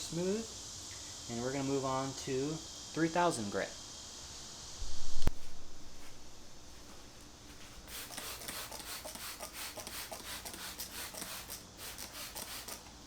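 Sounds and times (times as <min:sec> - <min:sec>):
sandpaper rasping on plastic: 0:07.9 - 0:12.9.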